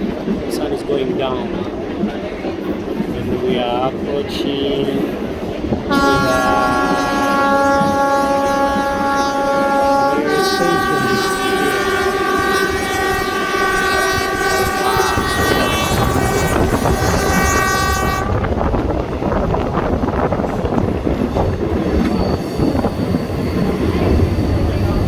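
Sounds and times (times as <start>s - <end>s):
train wheels clattering on rails: 0.0s - 25.0s
train horn: 5.9s - 18.5s.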